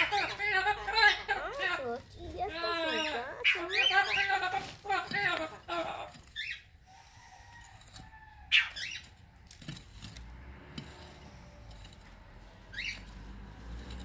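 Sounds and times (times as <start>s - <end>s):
small bird chirping: 0.0s - 7.2s, 12.5s - 13.3s.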